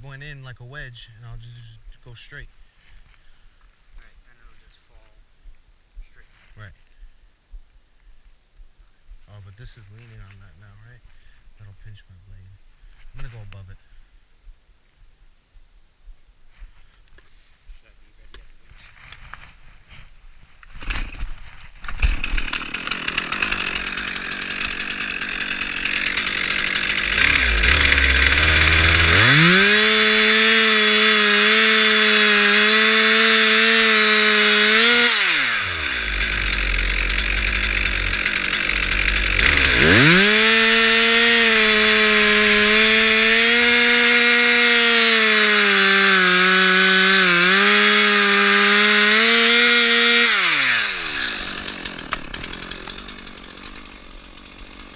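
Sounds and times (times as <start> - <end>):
chainsaw cutting tree trunk: 20.8 - 54.9.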